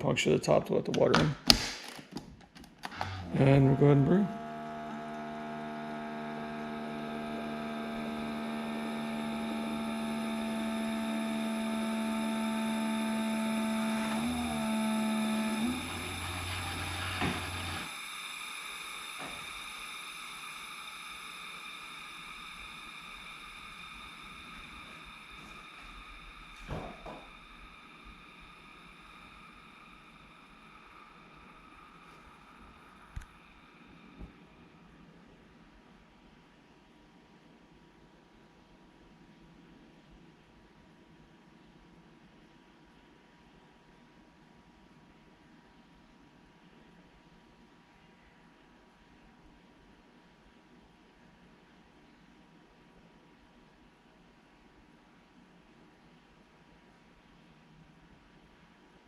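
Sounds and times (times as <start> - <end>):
coffee maker pump buzzing hum: 2.8 - 35.6.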